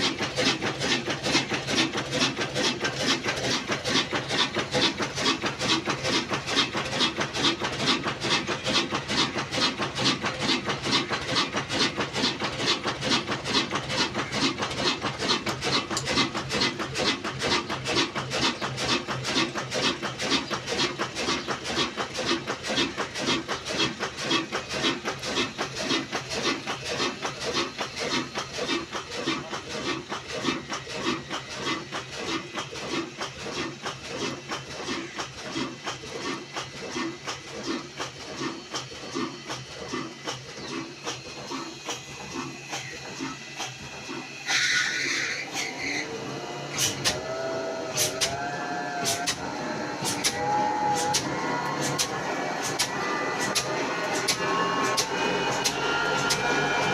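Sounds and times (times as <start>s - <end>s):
single-cylinder diesel engine running: 0.0s - 56.9s
flour mill grinding: 45.4s - 56.9s.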